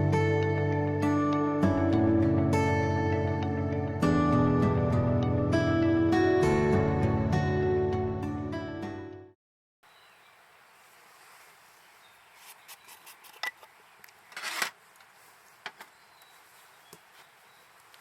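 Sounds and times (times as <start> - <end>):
outdoor background hiss: 9.8 - 18.0
rustling: 10.7 - 18.0.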